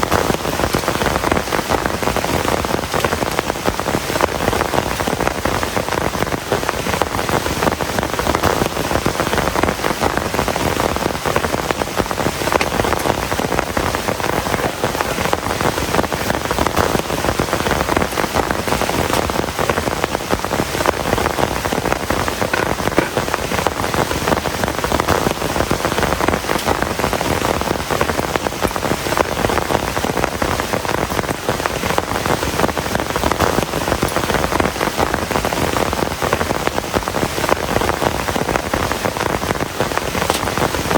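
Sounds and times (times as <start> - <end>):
heavy rain pattering: 0.0 - 40.9.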